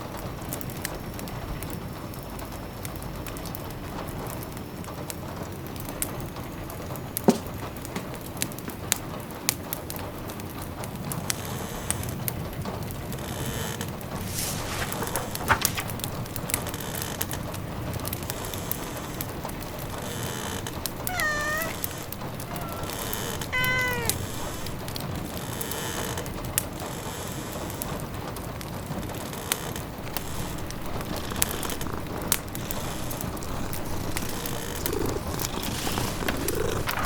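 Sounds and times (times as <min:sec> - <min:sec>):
wood fire crackling: 0:13.8 - 0:26.7, 0:28.6 - 0:37.0
rain hissing: 0:14.0 - 0:16.7, 0:29.8 - 0:37.0
cat meowing: 0:20.1 - 0:25.0, 0:30.2 - 0:37.0.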